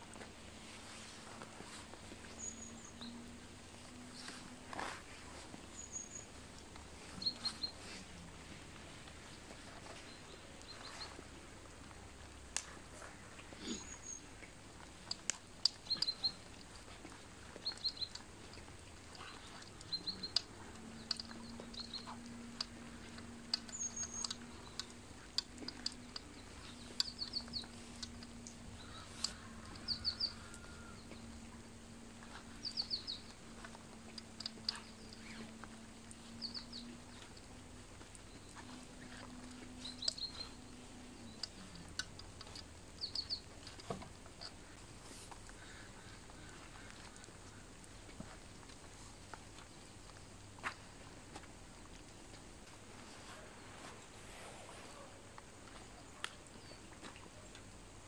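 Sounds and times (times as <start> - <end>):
small bird chirping: 1.7 - 8.1, 12.6 - 14.4, 15.0 - 37.4, 38.0 - 47.6
scattered clicks: 17.6 - 30.2.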